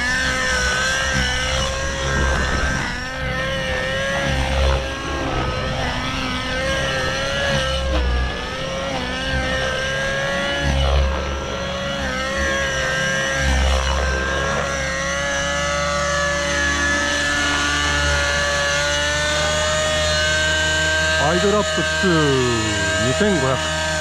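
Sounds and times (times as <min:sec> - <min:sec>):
model helicopter engine high revs: 0:00.0 - 0:24.0.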